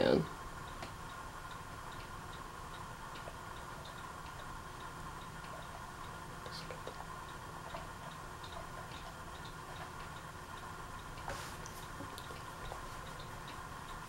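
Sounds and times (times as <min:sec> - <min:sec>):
ceiling fan motor hum: 0:00.0 - 0:14.0
light repeated ticking: 0:00.0 - 0:14.0.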